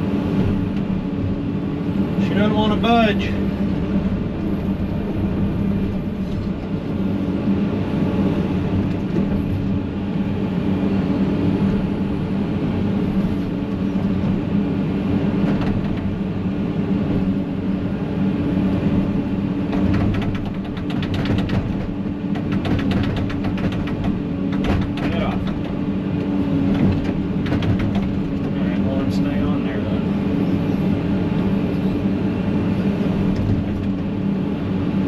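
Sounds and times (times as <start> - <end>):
excavator diesel engine running: 0.0 - 35.0
hydraulics working: 0.1 - 35.0
rattling clicks: 19.7 - 28.6.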